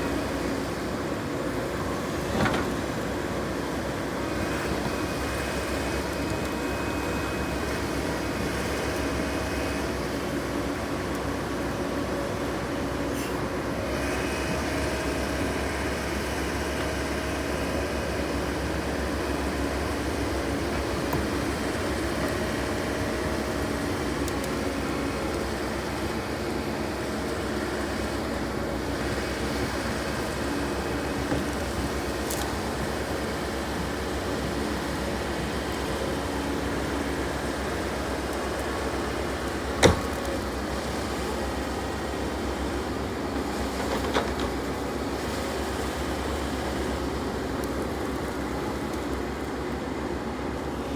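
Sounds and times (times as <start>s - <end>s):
diesel engine running steadily: 0.0s - 50.9s.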